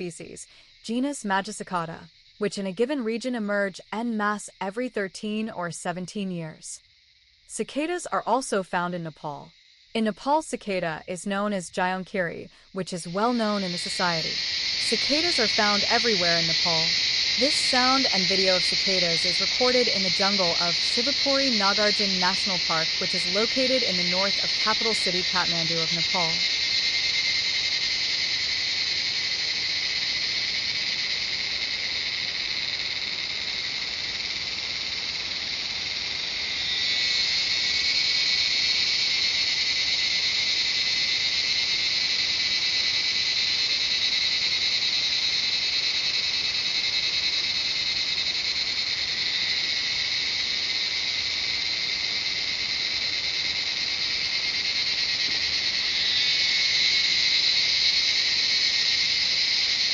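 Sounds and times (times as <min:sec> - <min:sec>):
cicadas buzzing: 0:00.0 - 0:59.9.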